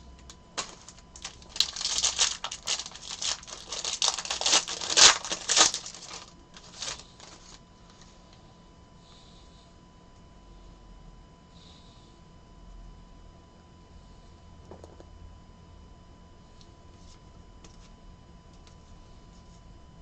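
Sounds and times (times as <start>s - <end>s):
card pack wrappers crinkling: 0.6s - 7.6s.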